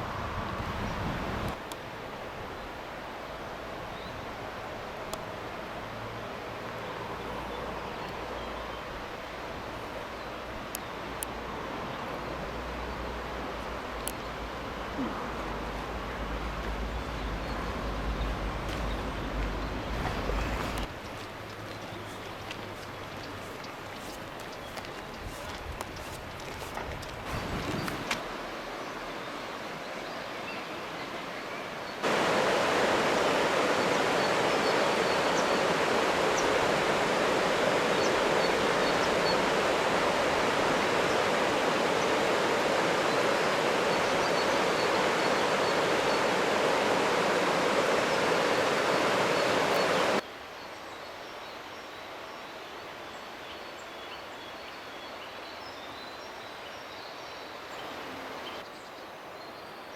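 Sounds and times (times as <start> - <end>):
steady rushing noise: 32.0 - 50.2.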